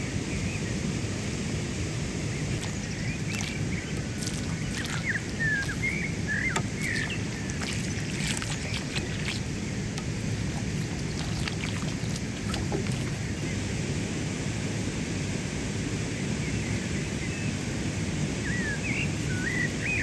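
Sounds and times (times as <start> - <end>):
steady low rumble: 0.0 - 20.0
small bird chirping: 2.5 - 13.5.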